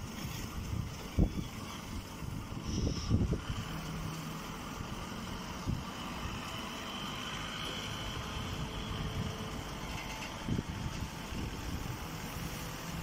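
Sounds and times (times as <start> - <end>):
baler machine rumbling: 0.0 - 13.0
faint high machine whine: 2.6 - 3.7.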